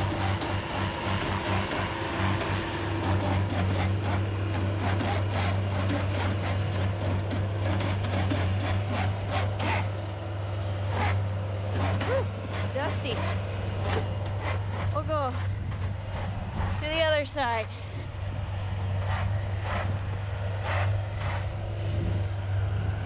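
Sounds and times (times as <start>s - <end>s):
diesel engine running: 0.0s - 23.0s
rotors shredding a bale: 0.0s - 23.0s.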